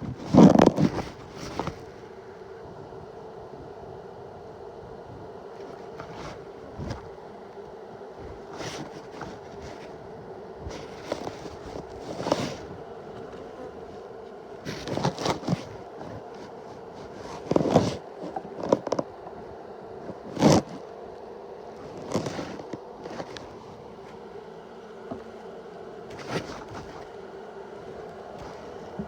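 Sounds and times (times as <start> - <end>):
honeybees buzzing: 0.0 - 29.0
loud scraping and rustling: 10.7 - 19.1, 20.1 - 20.8, 21.8 - 24.2, 25.1 - 29.0.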